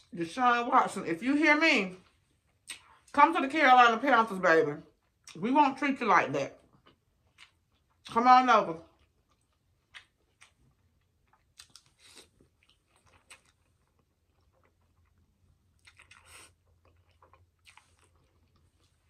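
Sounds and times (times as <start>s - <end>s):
close chewing with mouth clicks: 2.4s - 3.1s, 6.6s - 8.1s, 8.9s - 19.0s.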